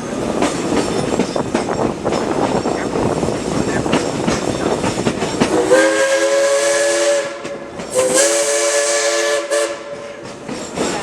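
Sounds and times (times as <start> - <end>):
steam hiss: 0.0 - 11.0
train rumble and wheel clatter: 0.0 - 11.0
steam locomotive chime whistle: 5.5 - 10.5.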